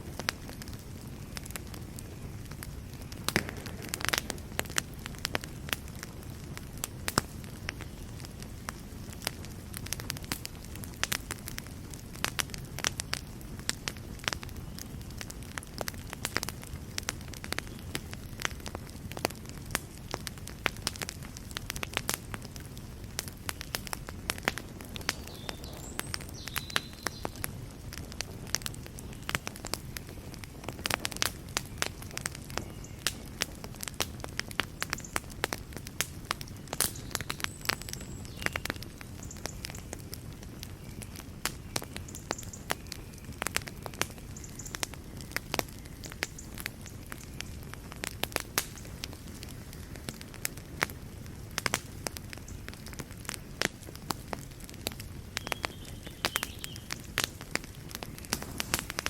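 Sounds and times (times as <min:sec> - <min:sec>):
fire crackling and popping: 0:00.0 - 0:59.0
low rumble of flames: 0:00.0 - 0:59.0.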